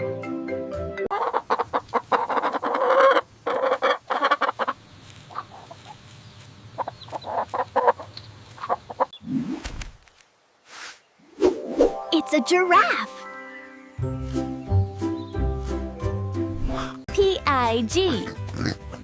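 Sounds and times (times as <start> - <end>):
chickens clucking: 1.1 - 9.2.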